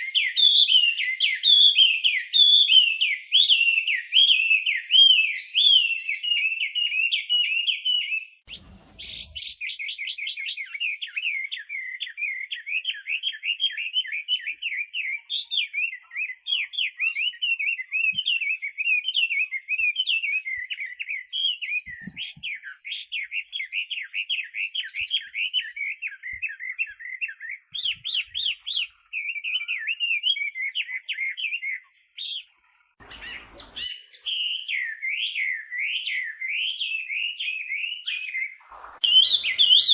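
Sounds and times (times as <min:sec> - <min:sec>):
bird singing whistled notes: 0:00.0 - 0:32.5, 0:33.1 - 0:39.9
low rustle: 0:08.5 - 0:09.4.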